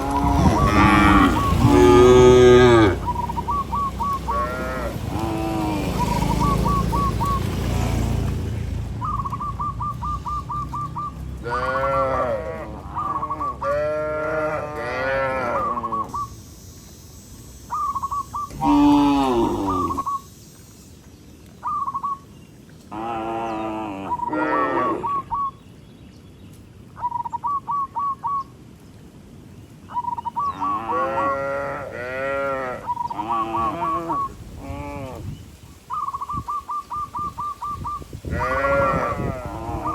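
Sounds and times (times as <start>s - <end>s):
cattle mooing: 0.0s - 3.5s, 4.1s - 6.8s, 11.4s - 16.1s, 18.5s - 20.1s, 22.9s - 25.1s, 30.6s - 35.3s, 38.3s - 39.9s.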